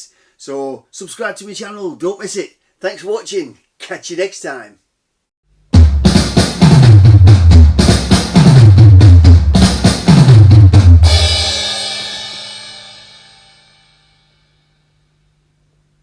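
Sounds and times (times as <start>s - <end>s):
fast drum beat: 5.8s - 12.0s
cymbal crash: 11.0s - 14.8s.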